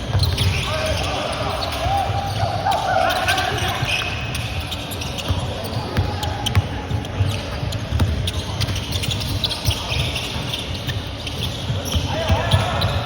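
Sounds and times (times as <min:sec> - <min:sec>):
basketball bouncing on court: 0:00.0 - 0:02.4, 0:03.2 - 0:13.0
sneakers squeaking: 0:00.0 - 0:13.0.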